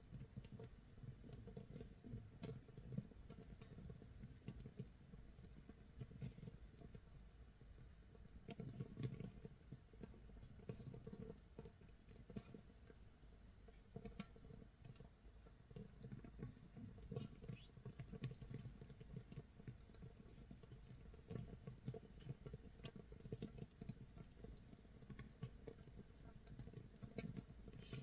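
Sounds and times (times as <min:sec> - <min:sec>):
fermentation bubbles popping: 0:08.1 - 0:28.0.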